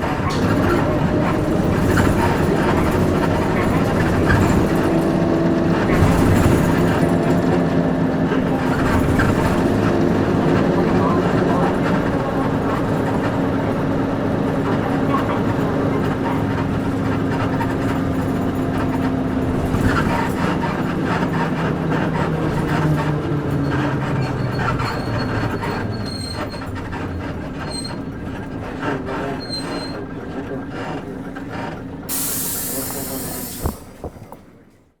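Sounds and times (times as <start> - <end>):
bus diesel engine slowing down: 0.0 - 35.0
compressed air hiss: 32.1 - 33.9.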